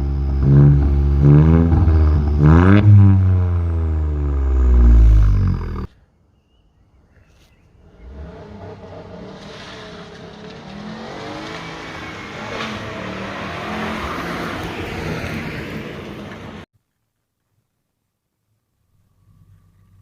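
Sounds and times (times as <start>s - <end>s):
car engine and exhaust revving: 0.0s - 5.9s, 7.8s - 16.6s.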